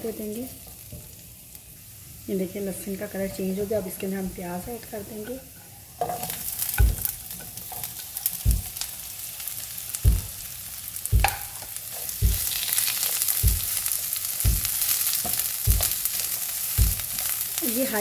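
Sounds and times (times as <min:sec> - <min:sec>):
onion and garlic sizzling in oil: 0:00.0 - 0:18.0
spatula knocking in pan: 0:06.0 - 0:07.5, 0:08.3 - 0:09.0, 0:10.0 - 0:17.4.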